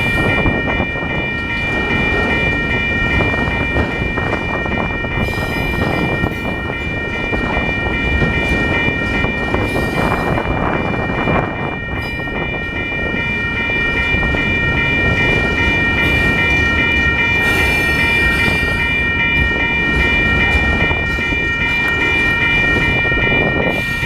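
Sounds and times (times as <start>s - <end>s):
freight train cars rumbling: 0.0s - 24.0s
pulsing high ringing tones: 0.0s - 24.0s.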